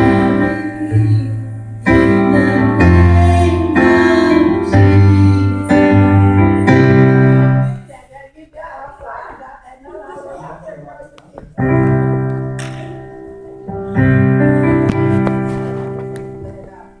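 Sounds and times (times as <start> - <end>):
electronic keyboard chords: 0.0 - 7.8, 11.6 - 17.0.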